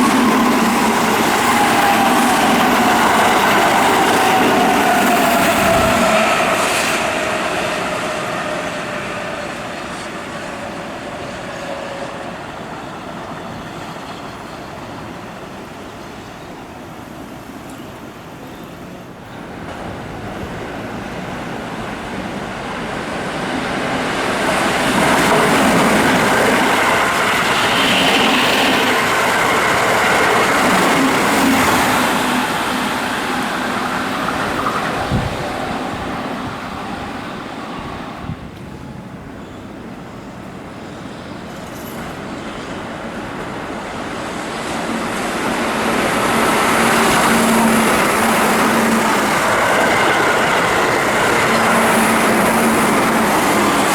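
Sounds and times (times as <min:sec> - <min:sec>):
train motor hum: 0:00.0 - 0:15.7, 0:18.7 - 0:40.7, 0:41.4 - 0:53.9
electric train passing: 0:00.0 - 0:53.9.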